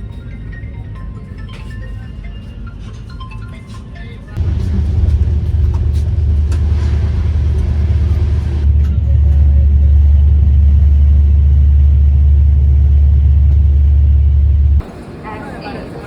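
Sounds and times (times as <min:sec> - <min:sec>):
moving vehicle rumble: 0:04.4 - 0:16.0.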